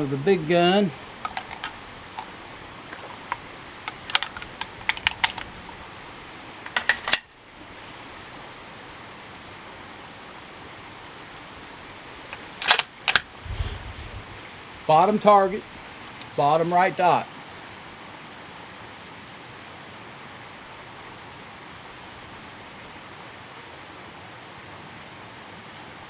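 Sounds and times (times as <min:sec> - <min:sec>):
rifle bolt metallic clicks: 0:01.2 - 0:02.3, 0:02.9 - 0:05.8, 0:06.6 - 0:07.3, 0:12.2 - 0:13.3.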